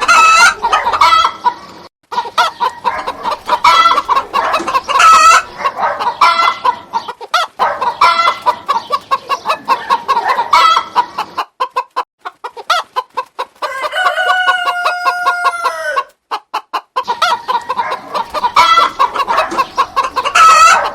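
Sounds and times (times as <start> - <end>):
chickens clucking: 0.0 - 20.9
rooster crowing: 13.6 - 16.1.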